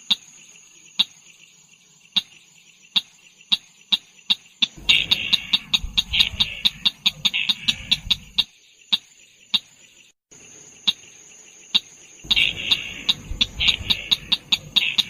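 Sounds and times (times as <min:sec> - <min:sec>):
buzzy bird chatter: 0:00.0 - 0:15.0
bird sharp clicking notes: 0:02.1 - 0:09.7, 0:11.7 - 0:15.0.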